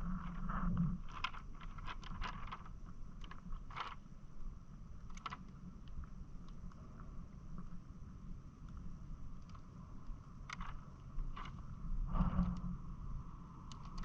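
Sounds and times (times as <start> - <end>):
water and wind rumble: 0.0 - 14.0
boat fittings clicking and scraping: 0.3 - 4.0, 5.1 - 5.5, 10.4 - 11.7, 13.7 - 14.0.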